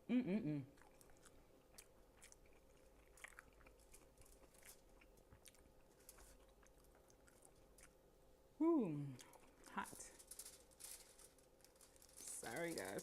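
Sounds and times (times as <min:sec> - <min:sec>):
person chewing: 0:00.7 - 0:08.1.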